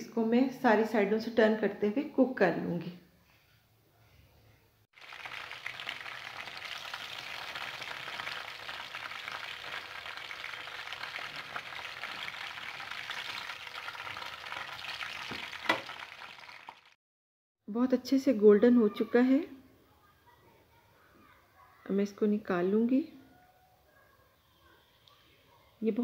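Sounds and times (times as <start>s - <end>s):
chicken frying in hot oil: 5.0s - 17.0s.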